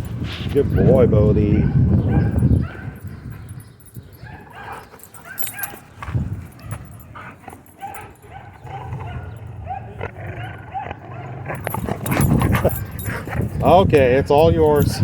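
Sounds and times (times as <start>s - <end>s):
dogs barking and yipping: 1.6s - 15.0s
dogs whining: 1.8s - 13.6s.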